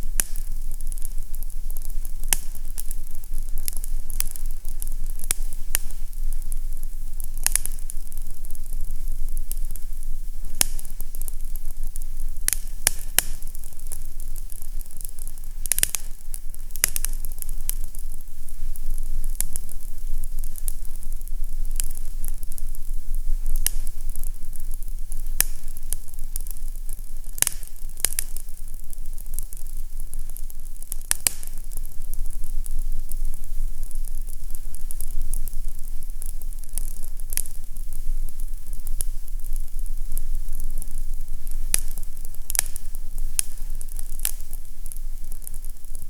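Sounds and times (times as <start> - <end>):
fire crackling and popping: 0.0 - 46.0
steady hiss: 0.0 - 46.0.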